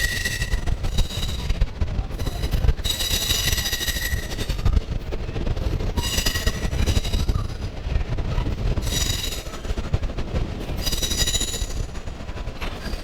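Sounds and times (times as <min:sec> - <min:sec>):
train rumbling on rails: 0:00.0 - 0:13.0
steel wheels squealing: 0:02.8 - 0:04.6.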